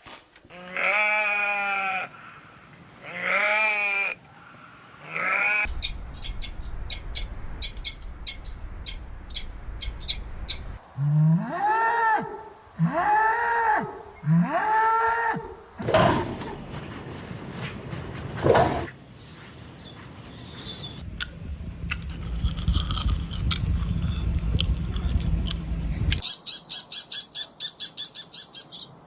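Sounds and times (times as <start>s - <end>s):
low hum: 5.7s - 11.4s, 21.0s - 26.2s.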